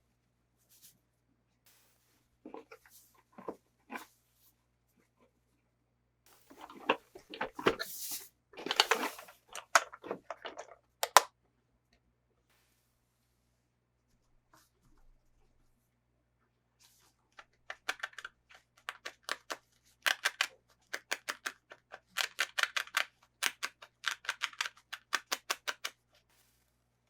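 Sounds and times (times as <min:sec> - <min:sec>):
packaging clicks and snips: 0:08.6 - 0:11.3, 0:17.4 - 0:26.2.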